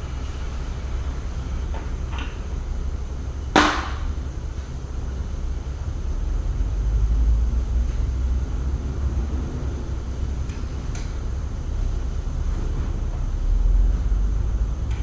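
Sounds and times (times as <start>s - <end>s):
steady low rumble: 0.0s - 15.0s
sharp ringing knock: 3.6s - 4.1s.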